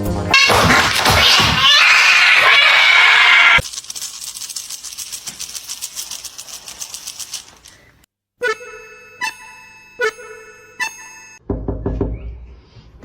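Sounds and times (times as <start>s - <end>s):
cat yowling: 0.4s - 3.6s
faint fast ticking: 3.6s - 8.0s.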